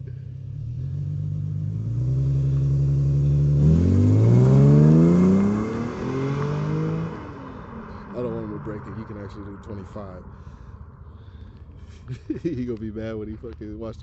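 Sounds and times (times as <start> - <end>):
car engine revving and accelerating: 0.0 - 10.4.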